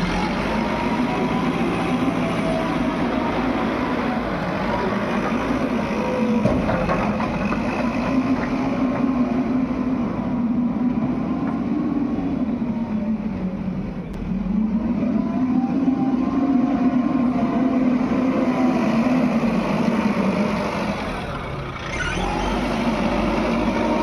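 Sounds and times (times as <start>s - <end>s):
heavy diesel engine running hard: 0.0s - 24.0s.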